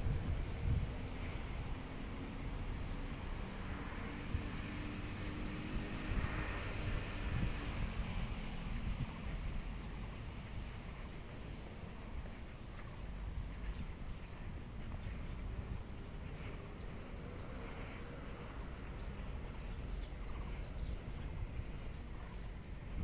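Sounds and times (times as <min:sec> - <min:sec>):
low outdoor background rumble: 0:00.0 - 0:23.0
small birds chirping: 0:09.1 - 0:23.0.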